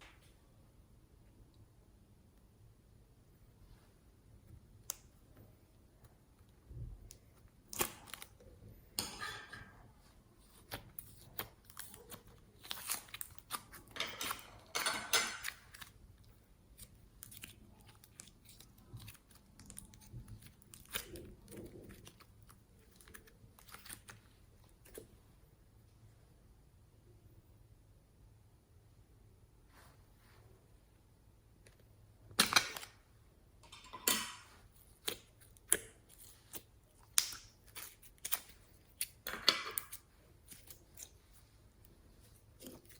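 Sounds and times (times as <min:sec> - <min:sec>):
slime squelching and clicking: 0:15.4 - 0:25.1, 0:34.8 - 0:41.4.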